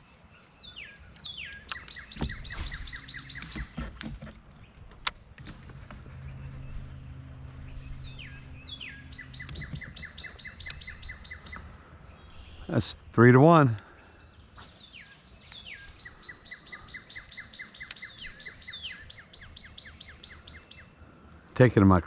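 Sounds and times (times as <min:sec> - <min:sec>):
songbird singing: 0:00.0 - 0:22.0
low steady hum: 0:01.3 - 0:16.0.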